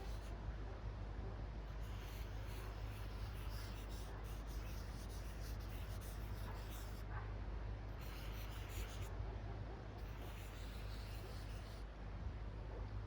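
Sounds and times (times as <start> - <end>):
marker scratching on paper: 1.8 - 7.0, 8.0 - 9.1, 10.0 - 11.8.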